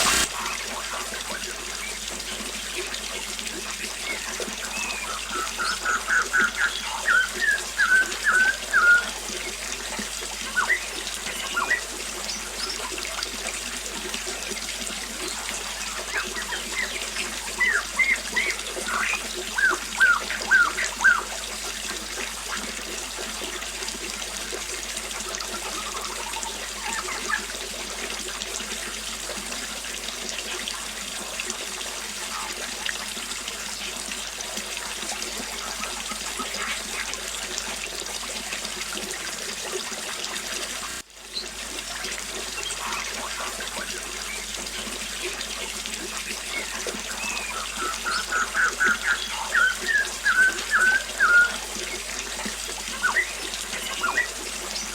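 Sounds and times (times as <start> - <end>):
small waterfall splashing: 0.0 - 54.9
birds chirping: 3.8 - 9.6, 10.4 - 13.0, 15.2 - 21.4, 42.5 - 45.0, 46.4 - 52.2, 52.8 - 54.9.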